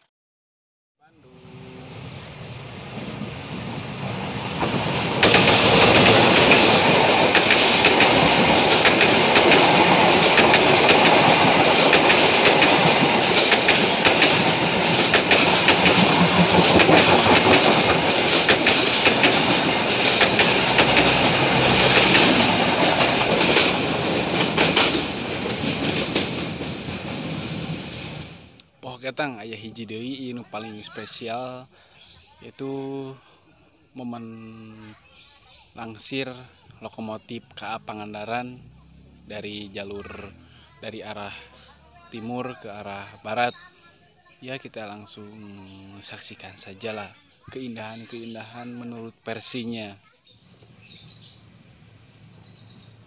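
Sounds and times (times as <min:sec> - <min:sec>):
diesel locomotive passing: 0:01.1 - 0:28.6, 0:36.4 - 0:43.4, 0:50.4 - 0:53.0
train wheels clacking over rail joints: 0:03.5 - 0:28.6.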